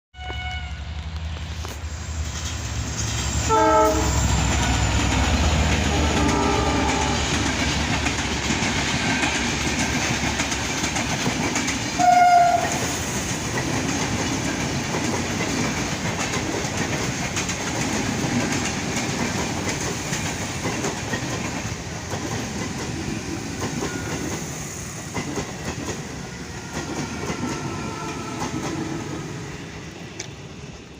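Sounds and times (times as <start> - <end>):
train horn: 0.1 - 0.8, 3.4 - 5.1, 5.9 - 7.4, 12.0 - 13.0, 26.5 - 28.7
train wheels rumbling on rails: 0.2 - 30.9.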